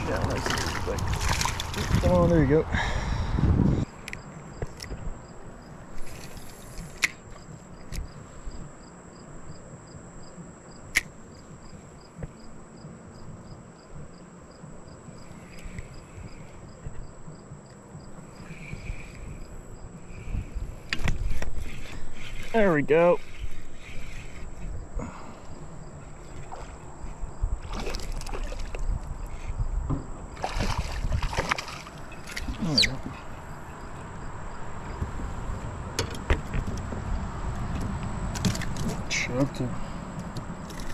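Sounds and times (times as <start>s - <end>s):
water splashing against kayak: 0.0s - 2.4s, 25.4s - 29.3s, 30.3s - 33.4s
insects chirping: 0.0s - 40.9s
steady low rumble: 22.8s - 32.2s.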